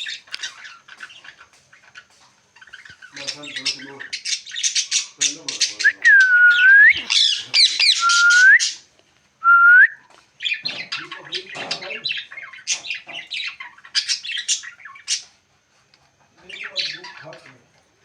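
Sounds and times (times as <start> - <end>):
parrot chattering calls: 2.6 - 11.2
parrot squawking: 2.6 - 15.3
parrot whistling: 5.8 - 8.8, 9.4 - 10.0.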